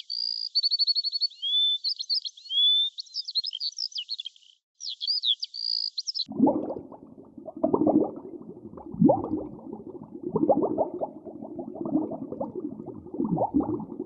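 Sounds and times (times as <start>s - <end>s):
songbird singing trills and whistles: 0.0s - 6.3s.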